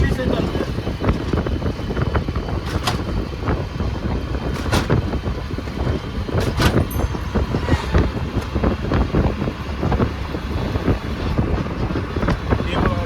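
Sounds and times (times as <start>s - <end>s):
vehicle engine rumbling: 0.0s - 13.0s
rattles and knocks: 4.5s - 12.6s.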